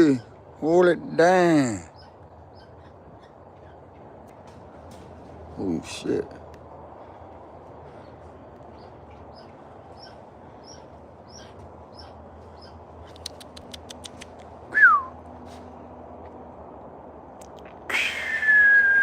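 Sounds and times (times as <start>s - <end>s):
sharp ticking bird calls: 0.0s - 5.0s, 7.9s - 14.5s
small birds chirping: 0.0s - 14.7s.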